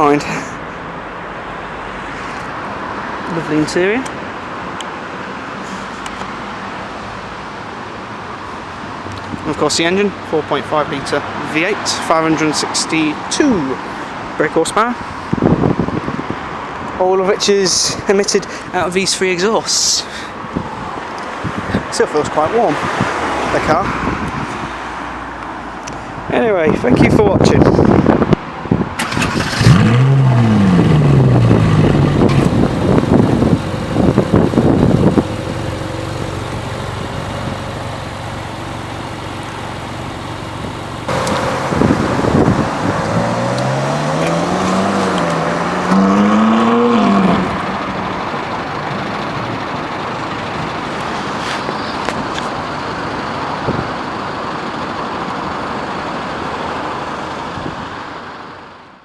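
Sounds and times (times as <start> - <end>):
sports car engine revving: 29.2 - 48.6.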